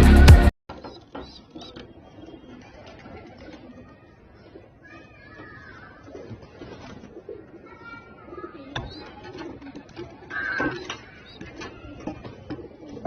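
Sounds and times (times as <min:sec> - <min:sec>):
pigeons cooing: 0:01.0 - 0:04.8, 0:05.8 - 0:13.0.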